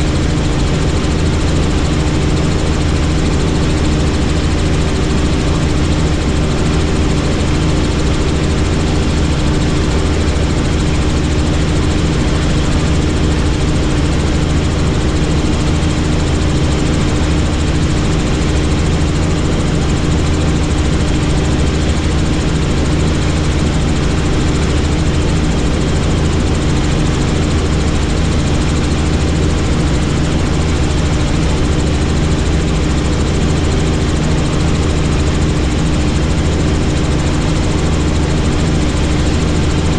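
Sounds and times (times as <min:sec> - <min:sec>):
helicopter rotor and engine noise: 0:00.0 - 0:39.9.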